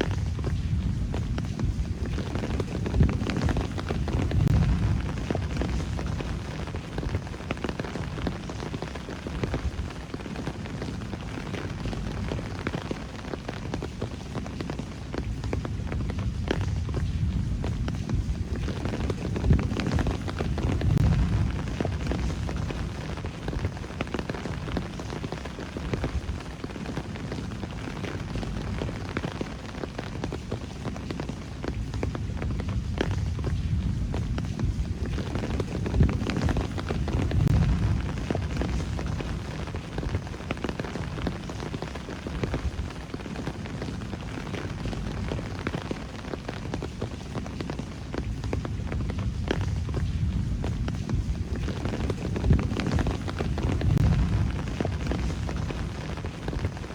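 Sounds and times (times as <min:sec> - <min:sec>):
low rumble: 0:00.0 - 0:07.5, 0:15.3 - 0:23.9, 0:32.2 - 0:41.2, 0:48.7 - 0:56.9
steady rain: 0:00.0 - 0:56.9.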